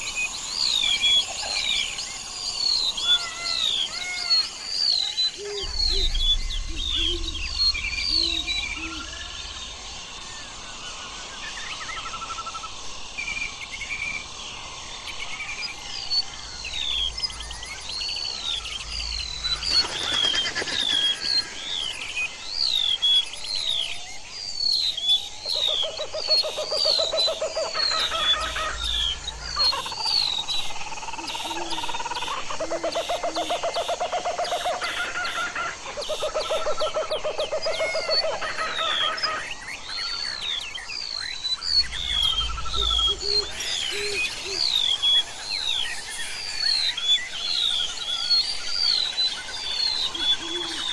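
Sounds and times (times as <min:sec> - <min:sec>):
birds whistling: 0:00.0 - 0:12.4, 0:15.4 - 0:32.5, 0:34.4 - 0:50.9
low pulsing trill: 0:05.6 - 0:10.8, 0:16.2 - 0:20.2, 0:41.7 - 0:44.6.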